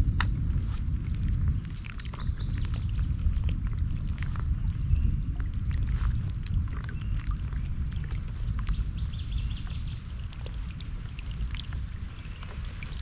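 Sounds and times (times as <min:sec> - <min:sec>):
water splashing and dripping: 0:00.0 - 0:13.0
wind on microphone: 0:00.0 - 0:13.0
small birds chirping: 0:01.6 - 0:03.0, 0:06.9 - 0:13.0.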